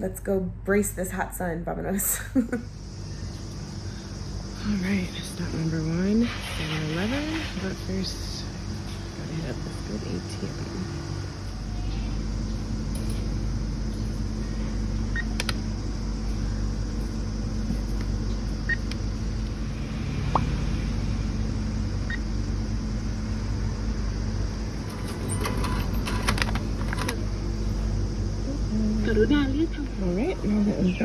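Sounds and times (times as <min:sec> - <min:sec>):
steady low hum: 0:00.0 - 0:31.0
cash machine keypad beeps: 0:15.1 - 0:15.4, 0:24.8 - 0:27.2.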